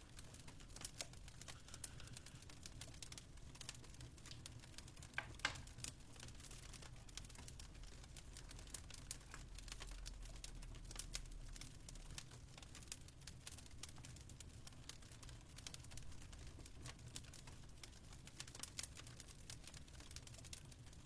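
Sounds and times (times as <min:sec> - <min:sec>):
fireplace crackling and popping: 0:00.0 - 0:21.0.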